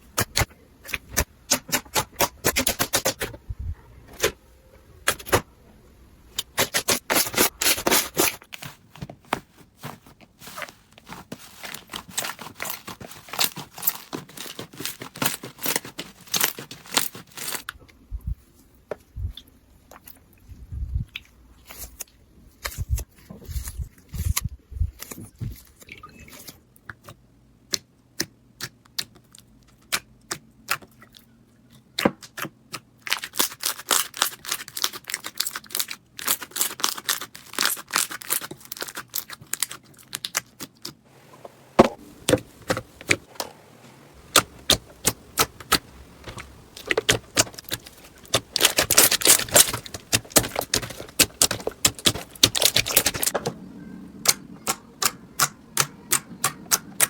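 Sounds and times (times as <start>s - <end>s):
slime clicking and crackling: 44.2s - 53.4s.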